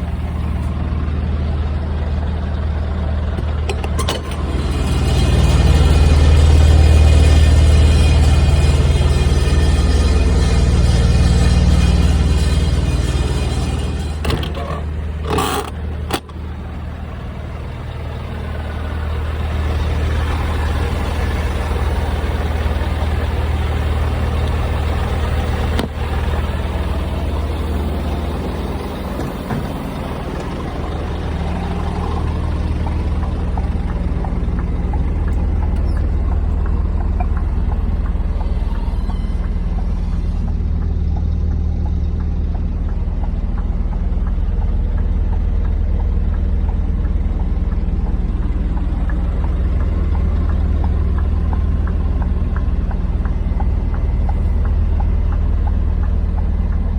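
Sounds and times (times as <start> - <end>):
truck diesel engine running: 0.0 - 56.9
knocks or clatters: 13.5 - 16.4.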